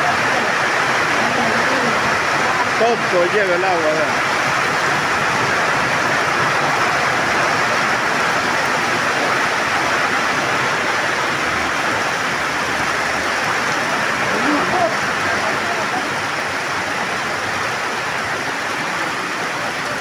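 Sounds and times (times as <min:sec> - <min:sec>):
heavy rain on pavement: 0:00.0 - 0:20.0
water running across pavement: 0:00.0 - 0:20.0.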